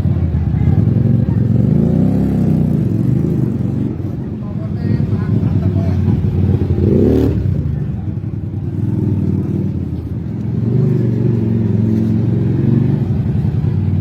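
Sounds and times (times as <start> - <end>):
motorcycle engine revving and idling: 0.0 - 14.0.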